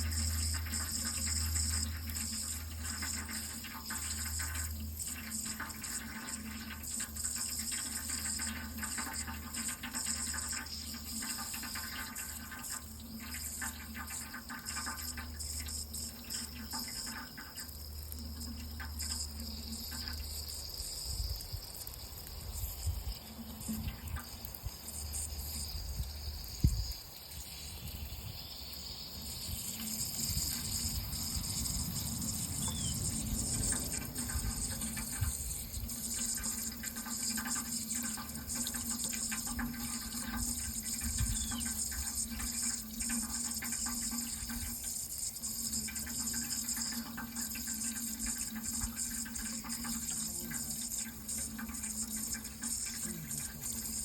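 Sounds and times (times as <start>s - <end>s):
running water pouring: 0.0s - 54.0s.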